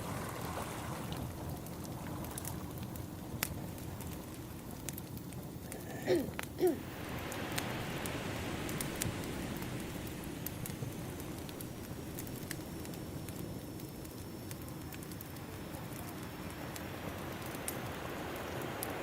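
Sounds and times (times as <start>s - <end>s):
ocean waves washing in: 0.0s - 2.3s, 6.8s - 19.0s
wood fire crackling: 0.0s - 19.0s.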